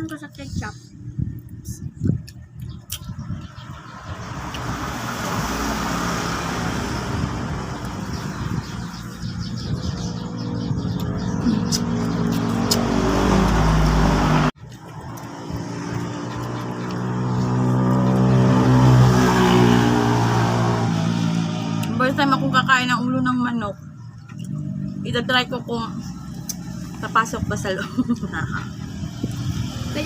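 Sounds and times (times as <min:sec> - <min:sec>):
vehicle engine running: 0:06.4 - 0:19.6.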